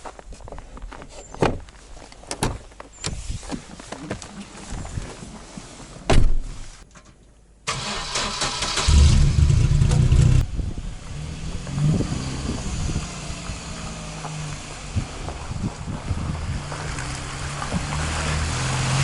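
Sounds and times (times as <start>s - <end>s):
loud thump: 6.1s - 6.5s
van engine starting and running: 7.7s - 16.3s.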